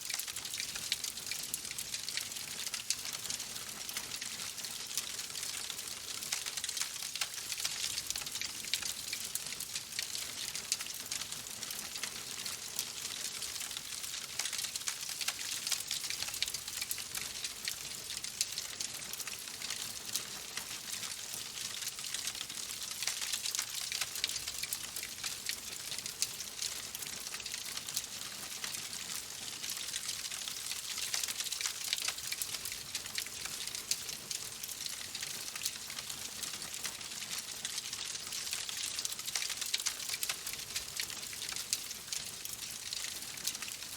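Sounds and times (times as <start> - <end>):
wood fire crackling: 36.3 - 43.7.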